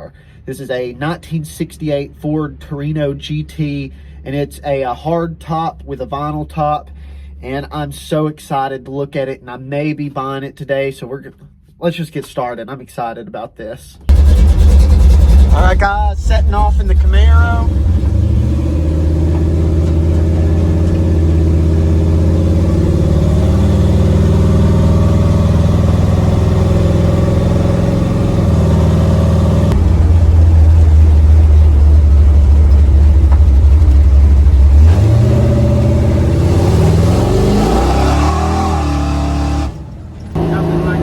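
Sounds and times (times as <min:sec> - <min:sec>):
car engine accelerating: 0:14.1 - 0:41.0.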